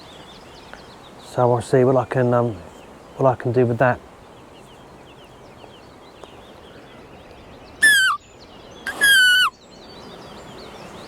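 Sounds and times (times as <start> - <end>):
high-pitched foil bleats: 7.8 - 8.2, 8.9 - 9.5.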